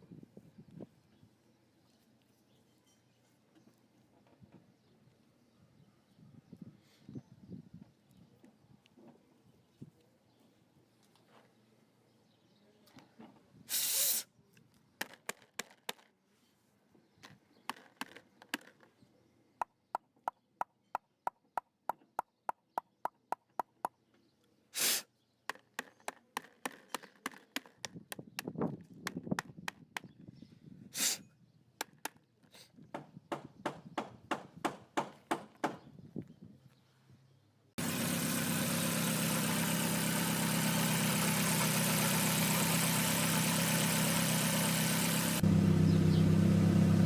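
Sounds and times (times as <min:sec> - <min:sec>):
short bursts of hiss: 0:13.7 - 0:14.3, 0:24.8 - 0:25.1, 0:31.0 - 0:31.2.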